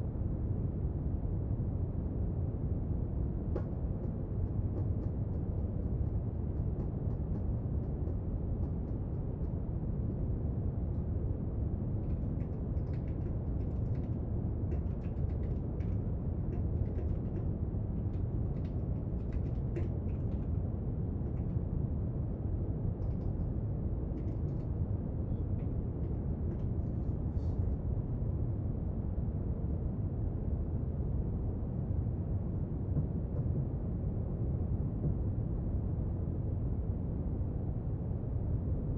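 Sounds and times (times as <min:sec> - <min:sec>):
faint desk clicks and taps: 0:12.0 - 0:20.6.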